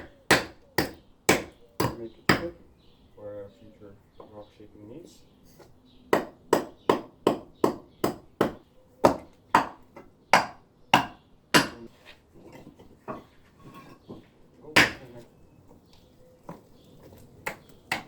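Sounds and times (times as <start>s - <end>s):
hammer striking stone: 0.0s - 2.6s, 6.1s - 11.8s, 14.8s - 15.1s, 17.4s - 18.0s.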